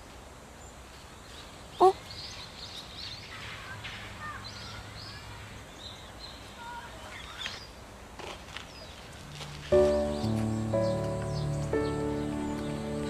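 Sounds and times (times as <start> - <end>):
birds chirping: 0.6 - 7.9, 8.6 - 13.0
rising and falling bird calls: 9.8 - 13.0.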